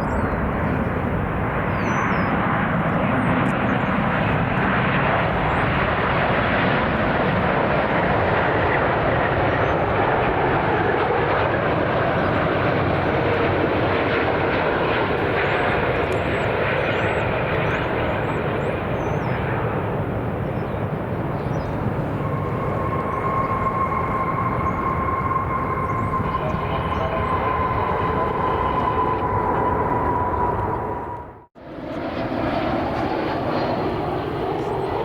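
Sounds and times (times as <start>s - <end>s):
jet engines rushing: 0.0s - 35.0s
high steady whine: 21.8s - 31.5s.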